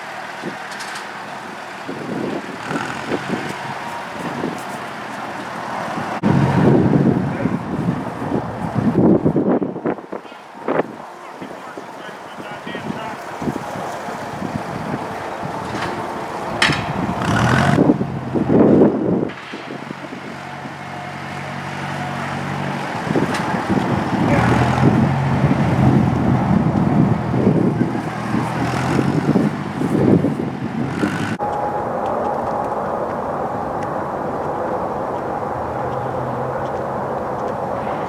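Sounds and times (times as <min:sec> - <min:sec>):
tractor engine running: 0:00.0 - 0:38.0
trees falling: 0:12.8 - 0:38.0.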